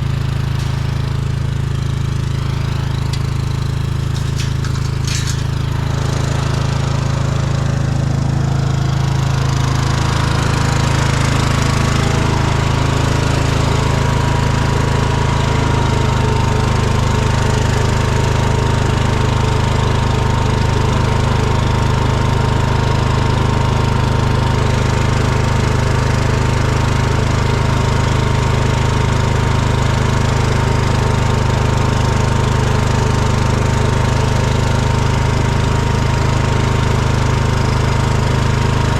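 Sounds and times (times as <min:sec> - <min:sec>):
engine running steadily: 0:00.0 - 0:18.9.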